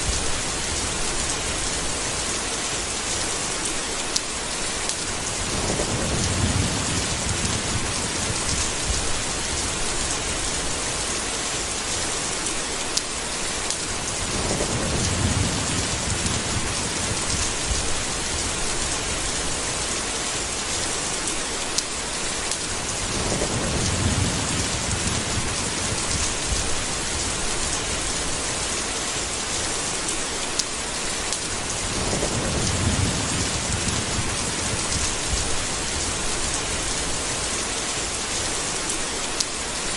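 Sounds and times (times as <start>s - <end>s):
heavy rain: 0.0s - 39.9s
thunder rumbling: 5.1s - 11.0s, 14.0s - 20.0s, 22.8s - 28.6s, 31.6s - 37.6s.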